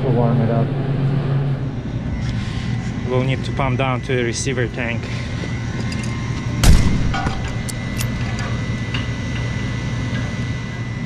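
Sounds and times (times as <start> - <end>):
condensing unit humming: 0.0 - 11.0.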